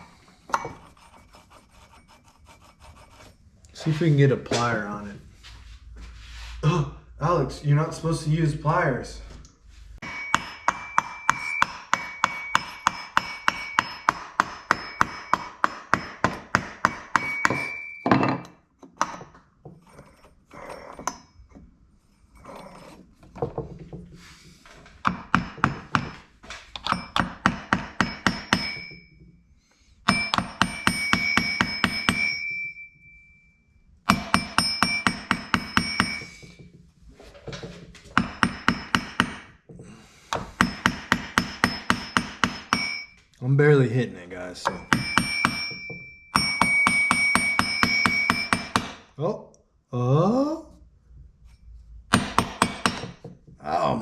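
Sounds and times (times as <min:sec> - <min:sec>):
hammer tapping on metal: 0:10.0 - 0:19.3, 0:25.0 - 0:29.3, 0:30.1 - 0:32.7, 0:34.1 - 0:36.7, 0:38.2 - 0:39.6, 0:40.3 - 0:43.2, 0:44.6 - 0:49.2, 0:52.1 - 0:53.5.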